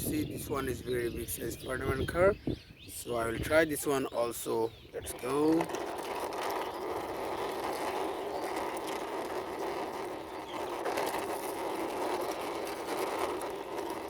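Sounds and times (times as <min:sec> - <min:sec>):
toy car wheels rolling: 0:05.0 - 0:14.0.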